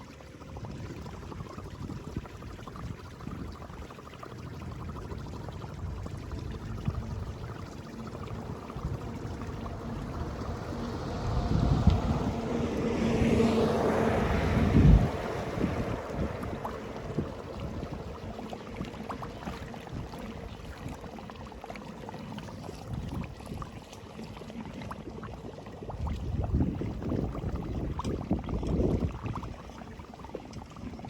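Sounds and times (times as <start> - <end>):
flood water rushing through drain: 0.0 - 31.0
wind on microphone: 4.8 - 21.4, 22.4 - 23.8, 25.9 - 31.0.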